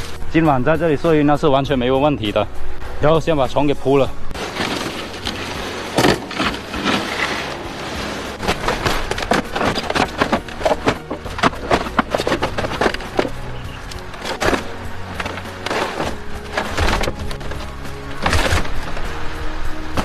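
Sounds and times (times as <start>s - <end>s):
wooden boards clattering: 4.4s - 20.0s.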